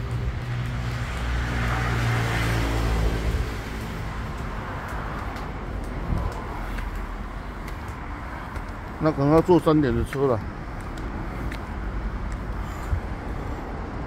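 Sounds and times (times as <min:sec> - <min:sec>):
vehicle passing by: 0:00.0 - 0:10.1
road traffic background: 0:00.0 - 0:14.0.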